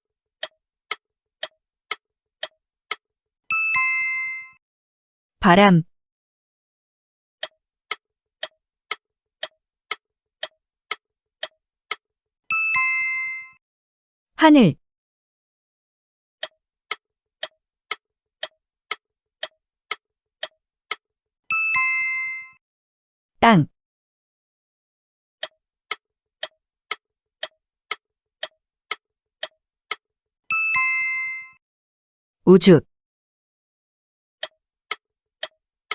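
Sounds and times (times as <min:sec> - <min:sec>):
clock-like ticks: 0:00.4 - 0:03.0, 0:07.4 - 0:13.6, 0:16.4 - 0:21.0, 0:25.4 - 0:30.0, 0:34.4 - 0:35.9.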